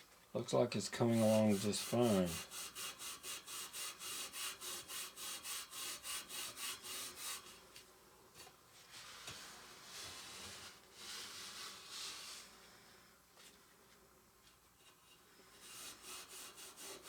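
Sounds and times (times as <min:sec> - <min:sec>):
steel wool scrubbing metal rim: 0:00.9 - 0:07.6, 0:15.6 - 0:17.0.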